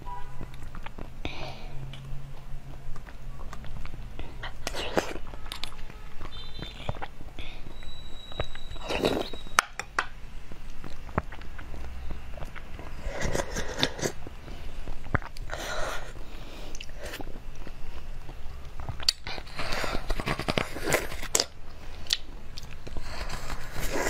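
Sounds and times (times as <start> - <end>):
person chewing soft jelly: 0.0 - 24.0
mouth clicks and smacks: 0.4 - 9.9, 10.5 - 24.0.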